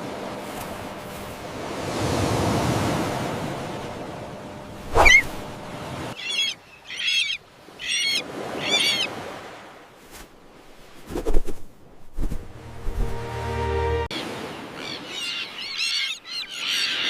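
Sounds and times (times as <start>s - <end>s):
terns calling harshly: 4.9s - 5.4s, 6.2s - 9.1s, 14.2s - 17.0s.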